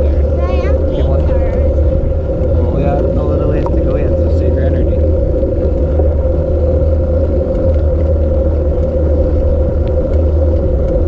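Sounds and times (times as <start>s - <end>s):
constant mid-pitched hum: 0.0s - 11.0s
wind buffeting microphone: 0.0s - 11.0s.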